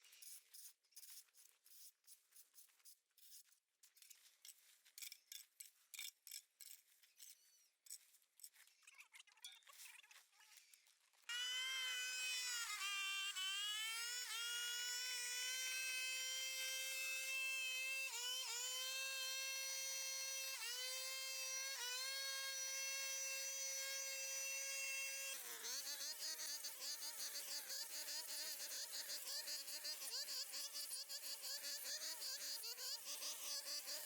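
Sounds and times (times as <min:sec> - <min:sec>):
power tool motor whining: 0:11.3 - 0:34.0.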